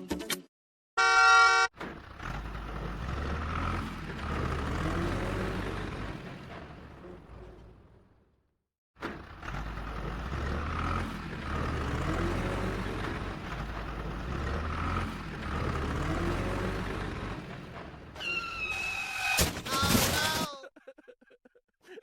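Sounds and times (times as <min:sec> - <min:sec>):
vehicle engine droning: 0:01.8 - 0:08.4, 0:09.0 - 0:18.6.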